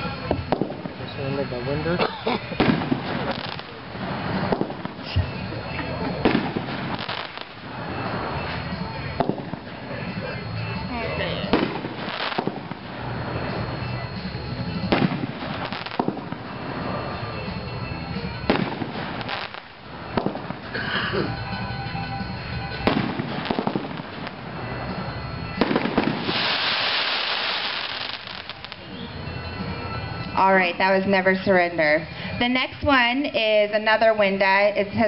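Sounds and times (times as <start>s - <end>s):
firework booms: 0.0s - 1.4s, 2.4s - 10.8s, 11.4s - 21.6s, 22.2s - 29.9s
firework crackling burst: 0.0s - 35.0s.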